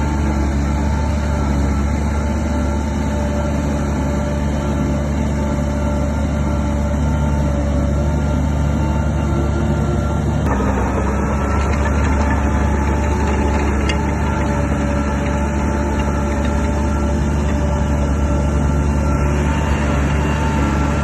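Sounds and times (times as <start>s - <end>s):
bulldozer diesel engine running: 0.0s - 21.0s.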